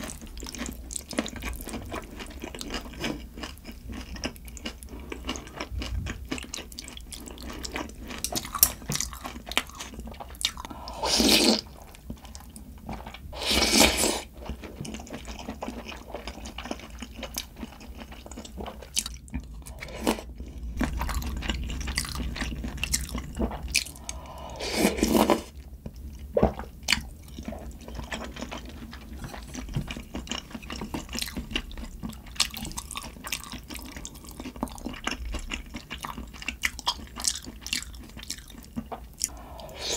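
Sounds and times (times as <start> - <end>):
chewing and crunching: 0.0 - 13.3, 14.0 - 39.9
loud slurps: 10.7 - 11.6, 24.0 - 25.5, 39.3 - 39.9.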